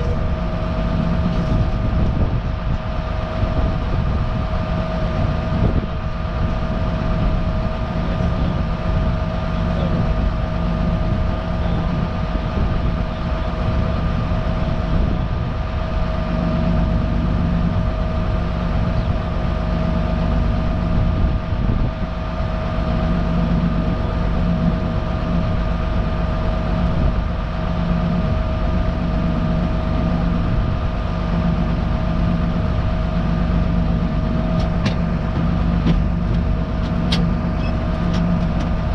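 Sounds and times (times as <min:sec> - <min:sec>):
high whine: 0:00.0 - 0:38.9
tractor engine running: 0:31.2 - 0:38.9.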